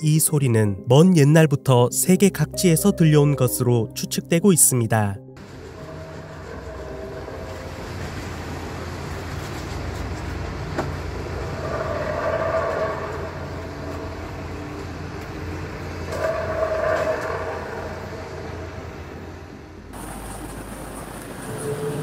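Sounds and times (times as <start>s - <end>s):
horn-like groan in the sky: 5.4s - 9.4s, 11.2s - 19.9s, 21.4s - 22.0s.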